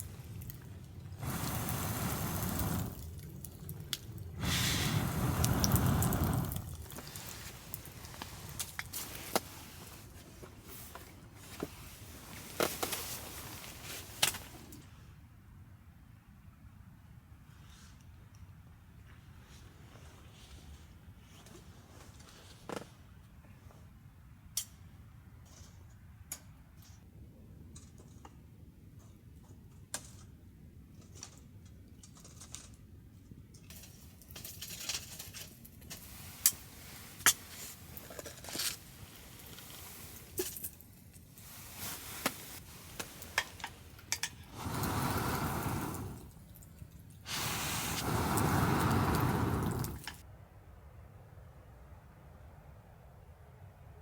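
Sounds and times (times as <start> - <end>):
wood fire crackling: 0.0 - 14.8, 33.7 - 50.2
water pouring into a vessel: 0.1 - 7.4, 44.5 - 50.2
sharp pops of fire: 1.2 - 3.2, 3.9 - 7.1, 42.2 - 46.5, 47.3 - 50.2.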